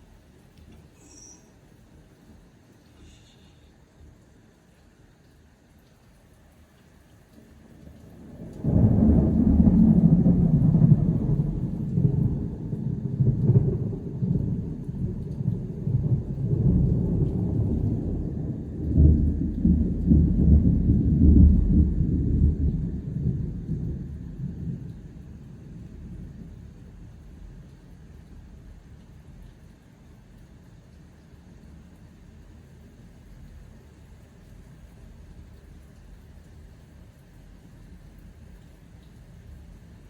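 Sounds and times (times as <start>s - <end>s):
thunder crack and rumble: 7.8s - 29.0s.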